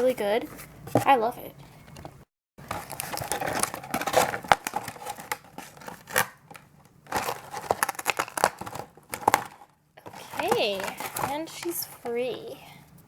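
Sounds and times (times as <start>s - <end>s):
packaging crinkling and rustling: 2.6s - 12.3s.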